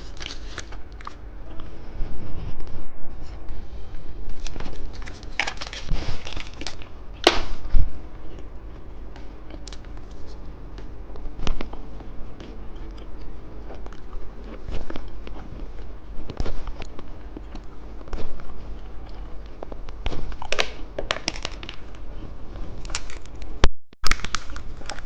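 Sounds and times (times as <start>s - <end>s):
plastic packaging crinkling: 0.0s - 1.2s, 4.3s - 7.5s, 20.3s - 22.0s, 22.8s - 23.4s, 24.0s - 25.0s
plastic snapping or ripping: 4.4s - 7.6s, 9.5s - 10.2s, 19.9s - 22.0s, 22.8s - 25.0s.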